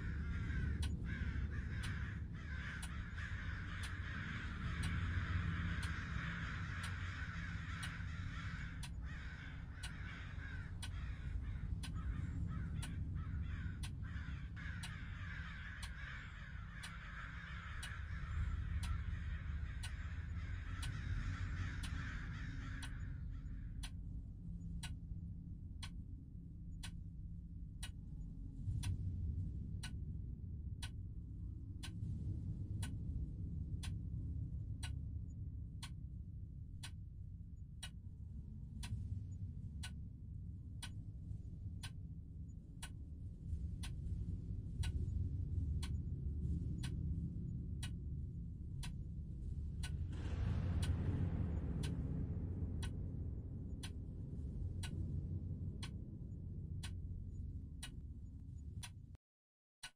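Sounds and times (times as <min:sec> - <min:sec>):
crows cawing: 0:00.0 - 0:23.9
low rumble: 0:00.0 - 0:59.2
clock ticking: 0:49.8 - 0:50.2, 0:50.8 - 0:56.2, 0:56.8 - 0:57.2.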